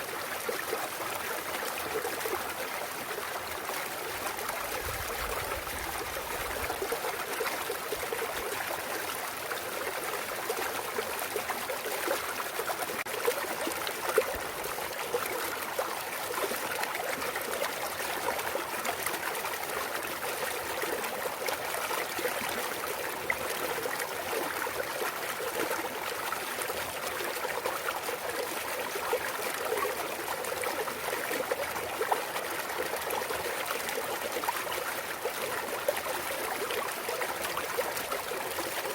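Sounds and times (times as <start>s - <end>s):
stream babbling over rocks: 0.0s - 38.9s.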